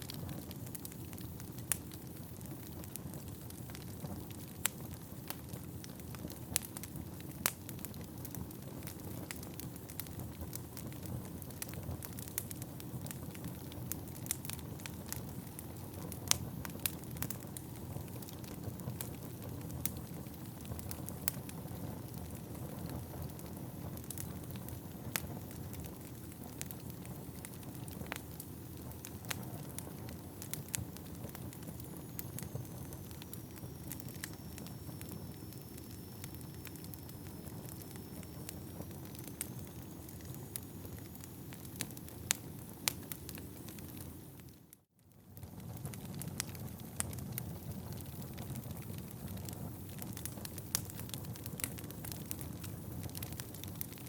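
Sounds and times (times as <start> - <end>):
logs crackling and popping: 0.0 - 54.0
low rumble of fire: 0.0 - 54.0
faint high whistle: 31.8 - 41.8.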